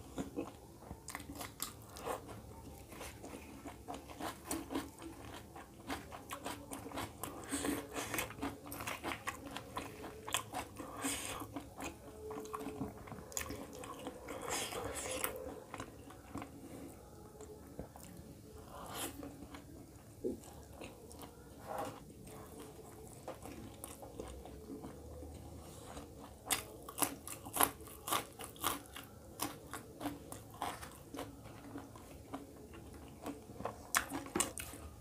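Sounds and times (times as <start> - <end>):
close-up chewing: 0.0 - 35.0
crisp crunches of chili: 25.9 - 34.9.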